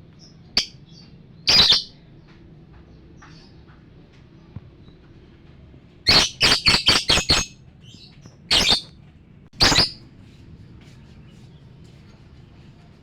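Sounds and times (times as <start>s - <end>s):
lovebird shrill calls: 1.5s - 1.9s, 6.1s - 7.5s, 8.5s - 8.9s, 9.6s - 10.0s.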